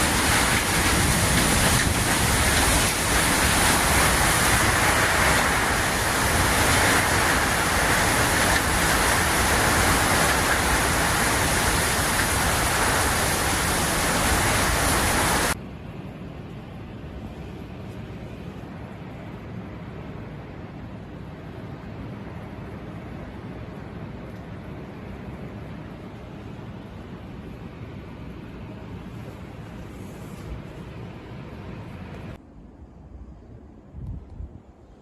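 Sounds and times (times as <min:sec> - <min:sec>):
heavy rain hissing: 0:00.0 - 0:15.6
quiet steady rush: 0:00.0 - 0:35.0.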